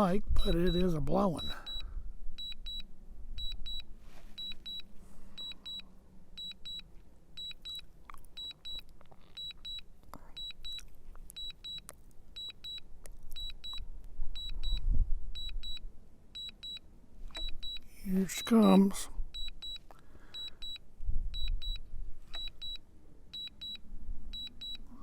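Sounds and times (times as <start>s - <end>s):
high warning beeps: 0.4s - 5.8s, 6.4s - 7.8s, 8.4s - 8.8s, 9.4s - 9.8s, 10.4s - 10.8s, 11.4s - 11.8s, 12.4s - 12.8s, 13.4s - 13.8s, 14.4s - 14.8s, 15.4s - 15.8s, 16.4s - 16.8s, 17.4s - 20.8s, 21.4s - 22.8s, 23.4s - 23.8s, 24.4s - 25.0s.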